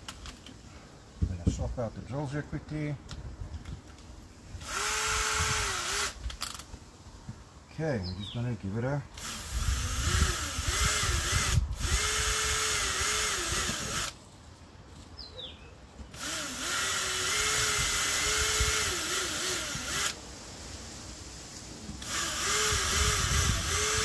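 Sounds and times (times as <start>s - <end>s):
electric drill boring holes: 4.6s - 6.2s, 9.2s - 14.2s, 16.1s - 20.2s, 22.0s - 24.0s.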